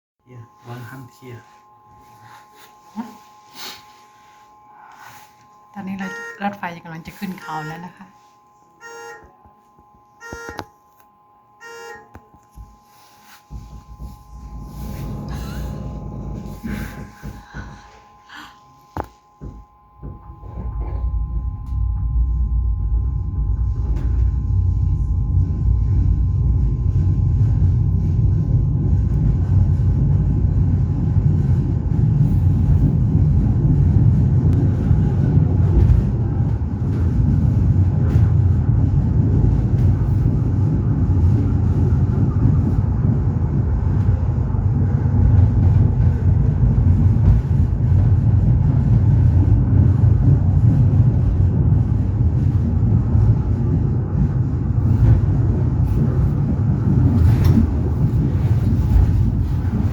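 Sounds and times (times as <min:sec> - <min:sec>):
train wheels rumbling: 0:13.5 - 0:18.0, 0:19.4 - 0:59.9.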